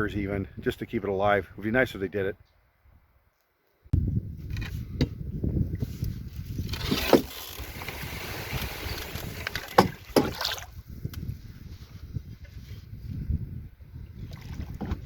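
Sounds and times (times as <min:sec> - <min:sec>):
paddle splashing water: 0:06.7 - 0:10.8, 0:14.2 - 0:15.0.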